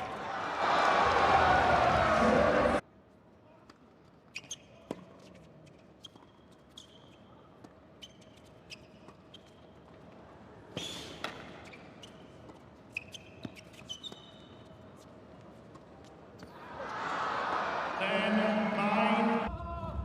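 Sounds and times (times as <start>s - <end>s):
sneaker squeaks: 4.2s - 16.6s.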